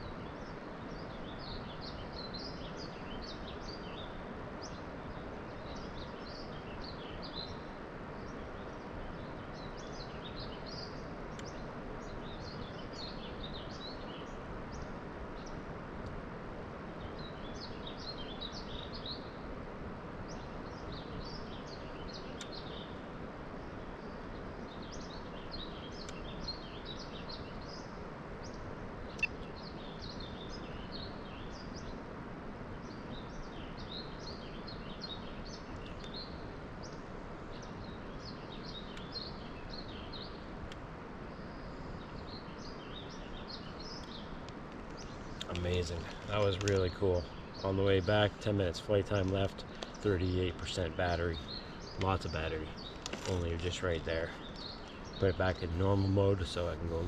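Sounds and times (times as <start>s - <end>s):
outdoor background hiss: 0.0s - 57.0s
small birds chirping: 0.0s - 57.0s.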